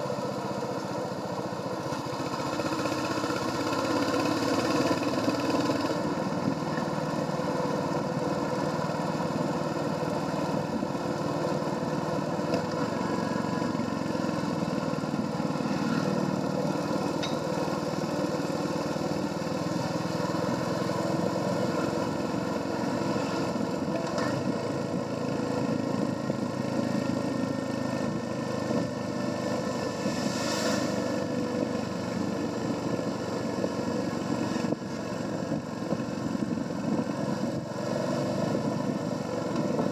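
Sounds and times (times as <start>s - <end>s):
motorcycle engine running: 0.0s - 30.3s, 30.9s - 39.9s.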